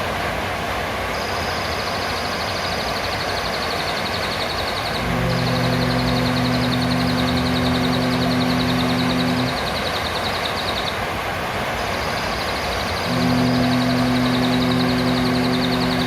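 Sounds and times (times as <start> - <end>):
low steady hum: 4.8 - 10.6, 13.0 - 16.0
parrot high rapid trill: 13.0 - 16.0.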